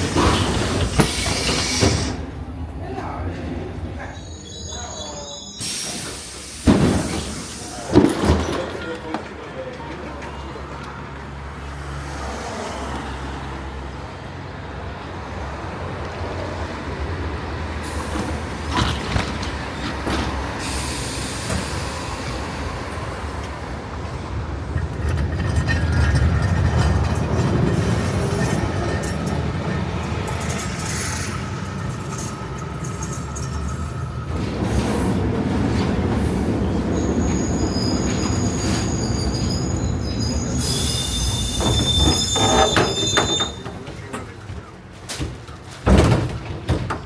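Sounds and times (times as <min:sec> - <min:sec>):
tram rumbling along track: 0:00.0 - 0:47.0.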